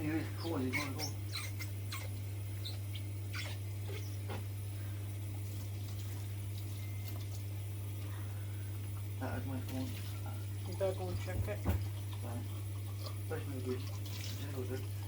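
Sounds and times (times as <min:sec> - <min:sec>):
steady low hum: 0:00.0 - 0:15.0
water sloshing in sink: 0:09.5 - 0:15.0.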